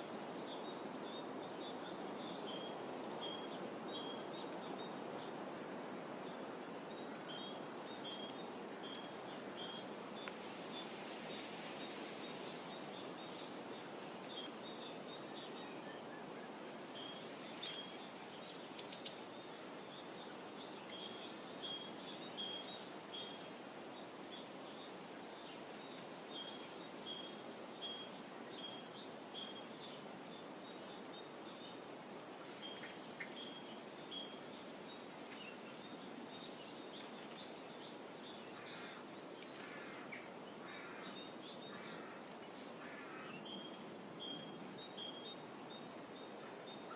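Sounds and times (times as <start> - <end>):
songbirds chirping: 0.0 - 46.9.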